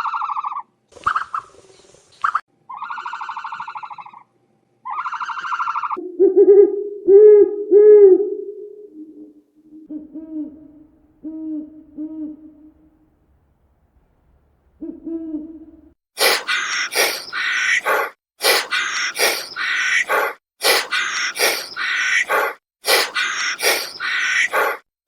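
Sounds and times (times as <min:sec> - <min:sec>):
low hoot: 0:05.0 - 0:13.0, 0:14.8 - 0:24.8
harsh animal call: 0:16.2 - 0:24.9.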